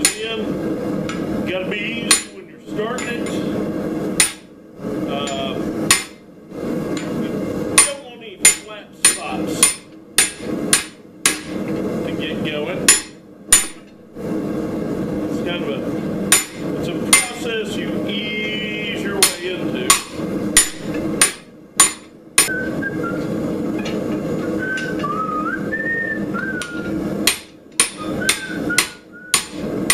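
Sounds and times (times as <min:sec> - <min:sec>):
steady background noise: 0:00.0 - 0:29.9
hammer striking metal: 0:02.1 - 0:02.4, 0:04.2 - 0:04.5, 0:05.2 - 0:06.2, 0:07.8 - 0:11.6, 0:12.9 - 0:13.9, 0:16.3 - 0:17.4, 0:19.2 - 0:22.5, 0:26.6 - 0:29.9.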